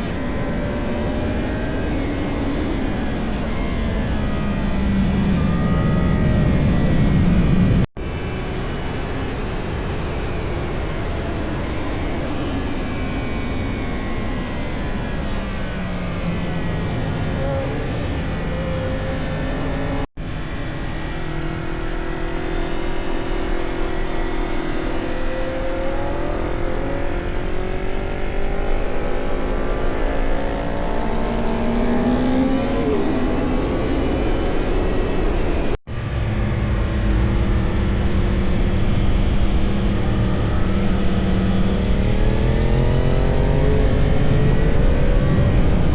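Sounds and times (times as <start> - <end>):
motorcycle engine revving: 14.9 - 45.9.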